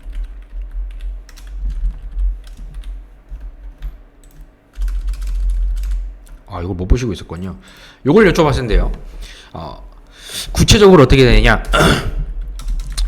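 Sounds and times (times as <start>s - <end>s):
computer keyboard typing: 0.0s - 6.5s, 12.3s - 13.0s.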